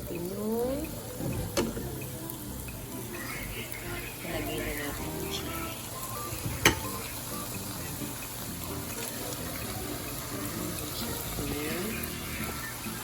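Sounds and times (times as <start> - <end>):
chicken sizzling in a pan: 0.0 - 13.0.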